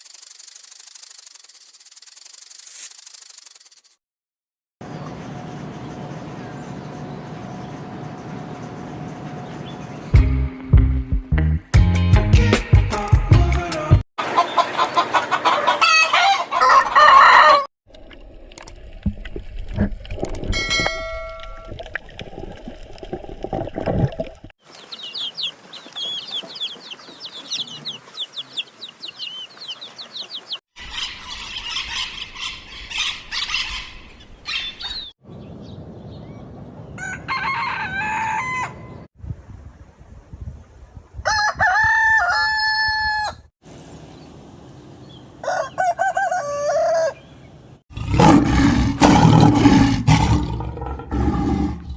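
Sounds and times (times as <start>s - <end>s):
chickens clucking: 14.2s - 17.6s, 24.7s - 32.6s
rooster crowing: 15.4s - 17.7s, 37.0s - 39.0s, 41.2s - 43.5s, 45.4s - 47.2s.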